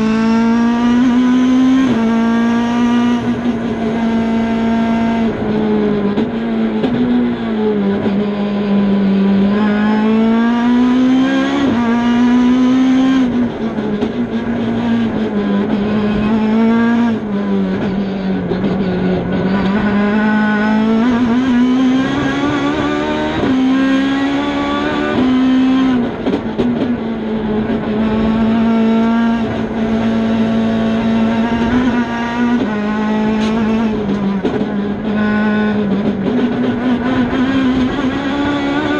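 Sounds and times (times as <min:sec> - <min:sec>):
rally car engine revving: 0:00.0 - 0:38.9.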